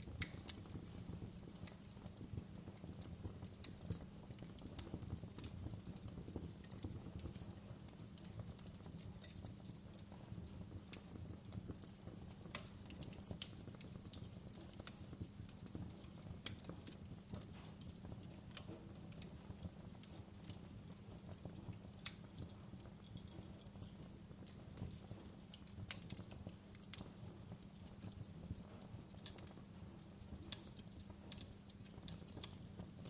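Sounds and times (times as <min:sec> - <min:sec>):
low rumble of flames: 0:00.0 - 0:33.0
wood fire crackling and popping: 0:00.0 - 0:33.0.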